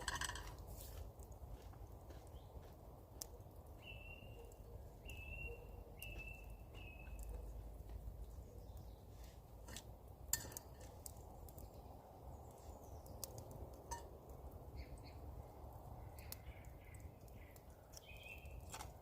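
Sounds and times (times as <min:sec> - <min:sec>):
faint bird chirps: 0:03.8 - 0:07.6.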